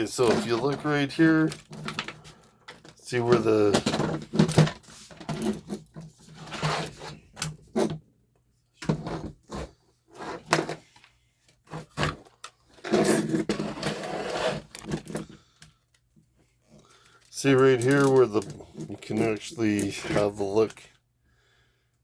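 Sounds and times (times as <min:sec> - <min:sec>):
hands handling plastic toy truck: 0:00.0 - 0:08.0, 0:08.8 - 0:20.9.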